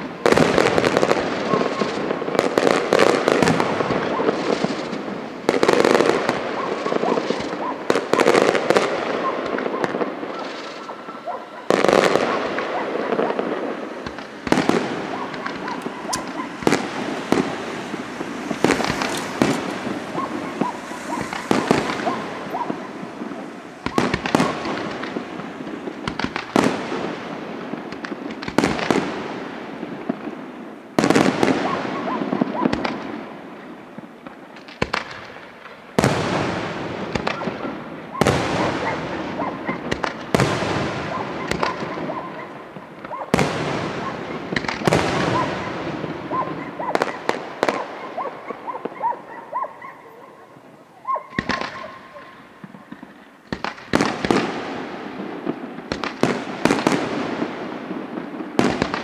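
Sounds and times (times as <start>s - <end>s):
fireworks shells bursting: 0.0s - 33.2s, 34.2s - 48.0s, 51.3s - 59.0s.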